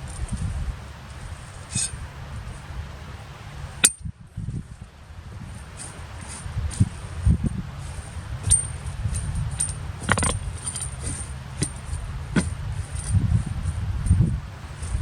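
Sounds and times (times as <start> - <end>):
walk-behind tractor tilling: 4.6 - 15.0
tines clinking on stones: 7.8 - 13.2.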